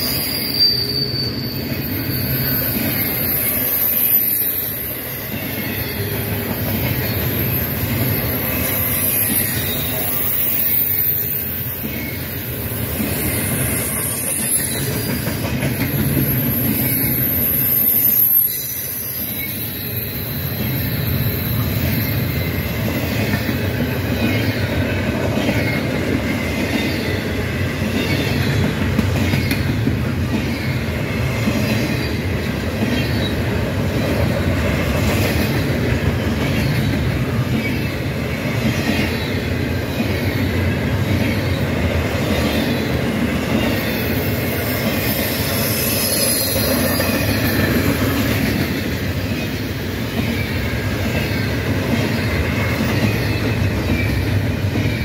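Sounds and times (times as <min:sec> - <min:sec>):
thin wheel squeal: 0:00.0 - 0:06.2, 0:07.0 - 0:11.7, 0:16.2 - 0:22.7, 0:44.2 - 0:48.0
freight train wheels rumbling: 0:00.0 - 0:55.0.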